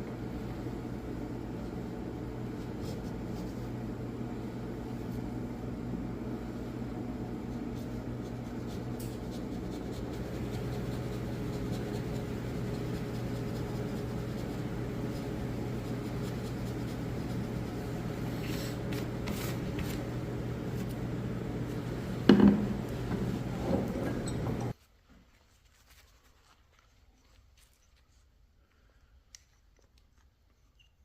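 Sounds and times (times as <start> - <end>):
low steady hum: 0.0 - 30.7.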